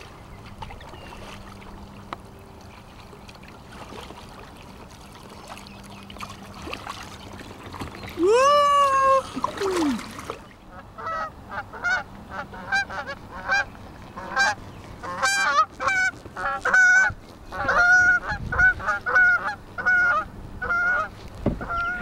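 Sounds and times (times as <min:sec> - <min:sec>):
geese honking: 0:10.7 - 0:22.0.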